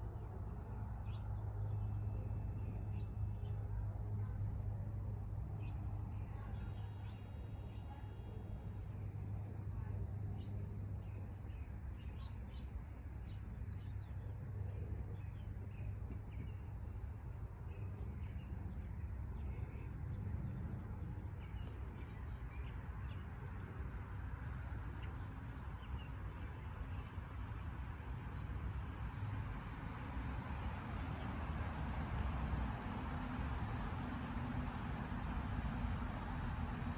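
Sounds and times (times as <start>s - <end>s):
low background hum: 0.0s - 29.4s.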